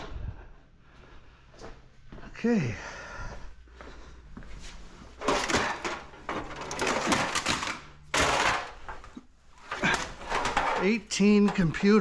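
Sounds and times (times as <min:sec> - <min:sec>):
scrap objects clattering and scraping: 0:04.6 - 0:12.0.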